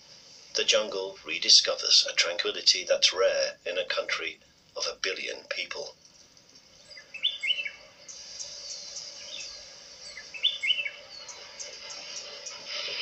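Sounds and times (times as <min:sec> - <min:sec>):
birds chirping: 0:00.0 - 0:13.0
steady high hiss: 0:00.0 - 0:13.0
falling bird chirps: 0:06.1 - 0:13.0.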